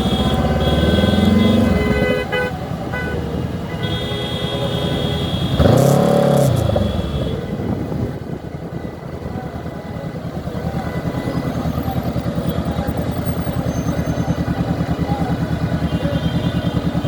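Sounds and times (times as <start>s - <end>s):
motorcycle engine accelerating: 0.0s - 2.2s, 5.5s - 8.2s, 10.4s - 17.0s.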